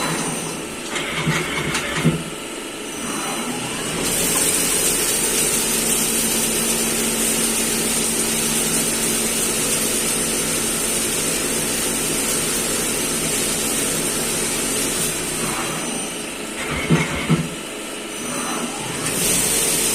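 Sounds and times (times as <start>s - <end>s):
machine humming with high whine: 12.9s - 19.9s.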